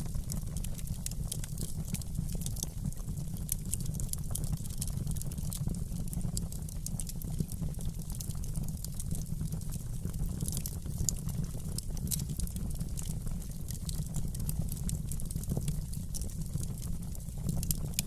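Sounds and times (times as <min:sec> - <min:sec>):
fire crackling and popping: 0:00.0 - 0:18.0
low rumble of flames: 0:00.0 - 0:18.0.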